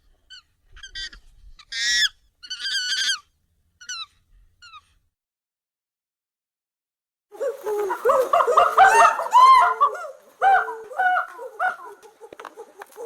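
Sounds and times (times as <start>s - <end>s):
high squeaky monkey calls: 0.3s - 5.0s.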